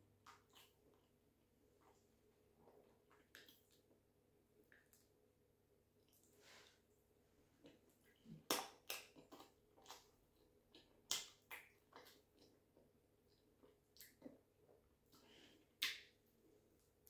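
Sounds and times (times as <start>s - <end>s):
wet mouth clicks and smacks chewing: 0.2s - 1.1s, 3.1s - 3.9s, 7.6s - 15.2s, 15.8s - 16.2s.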